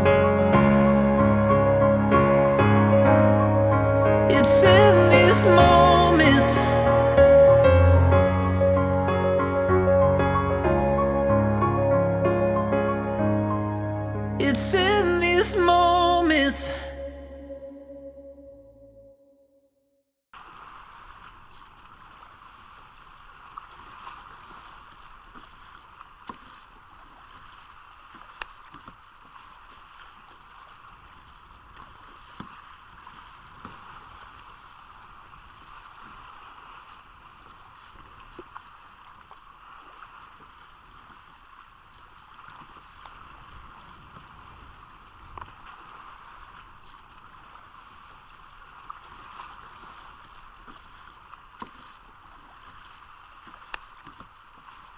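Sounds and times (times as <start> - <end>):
water rushing: 0.0 - 17.5, 20.4 - 54.9
wind: 20.3 - 54.9.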